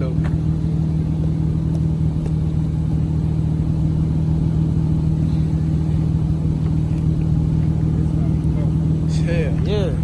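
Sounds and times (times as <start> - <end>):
car engine and road drone: 0.0 - 10.0.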